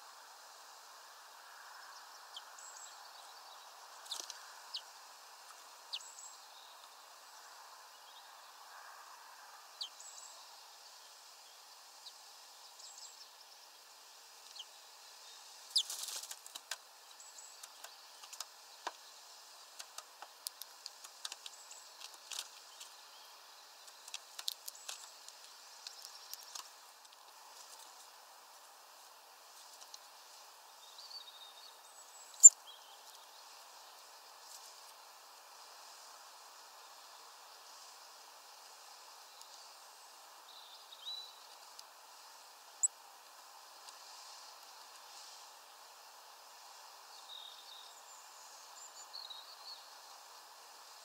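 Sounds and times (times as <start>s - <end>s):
outdoor background hiss: 0.0s - 51.0s
sharp clicks and ticks: 19.8s - 22.5s.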